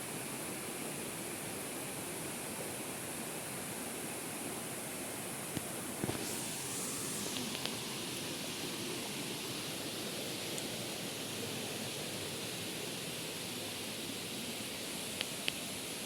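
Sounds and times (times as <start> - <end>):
waterfall rushing: 6.2 - 9.7.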